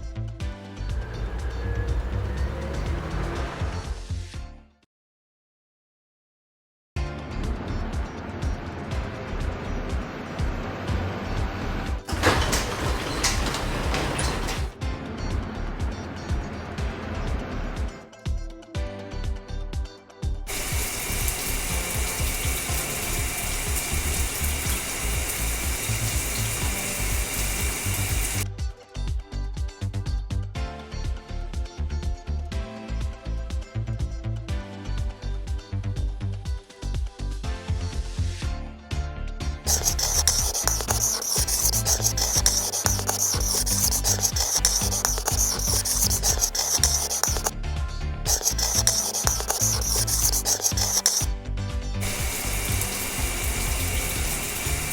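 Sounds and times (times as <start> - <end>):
background music with beat: 0.0 - 4.6, 14.7 - 21.0, 28.4 - 39.7
scratchy rubbing: 20.5 - 28.4, 39.7 - 47.5, 48.3 - 51.3, 52.0 - 54.9
steady hiss: 20.5 - 28.4, 52.0 - 54.9
water spray hissing: 20.5 - 28.4, 39.7 - 47.5, 48.3 - 51.3, 52.0 - 54.9.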